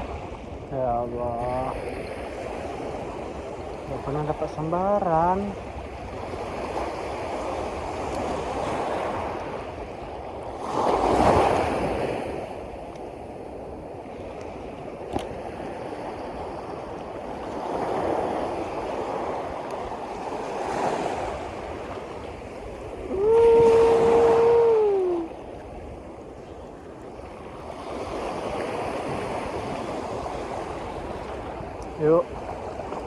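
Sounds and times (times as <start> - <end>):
sea waves washing in: 0.0 - 33.0.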